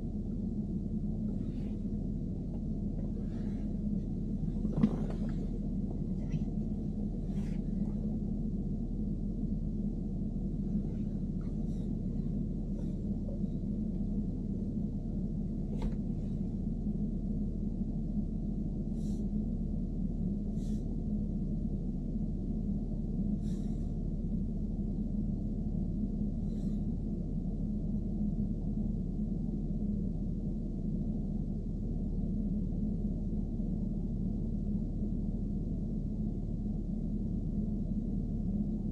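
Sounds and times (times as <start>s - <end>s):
car engine droning: 0.0s - 24.7s.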